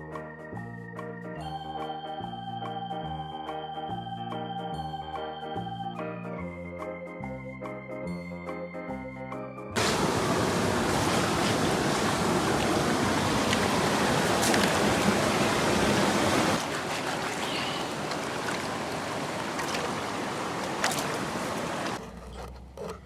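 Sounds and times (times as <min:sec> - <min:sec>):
steady rushing noise: 0:09.8 - 0:22.0.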